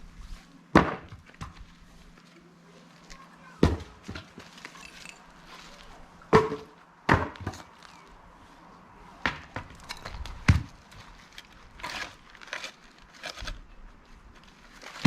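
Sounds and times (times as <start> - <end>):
axe chopping log: 0.7 - 1.6, 6.3 - 7.6.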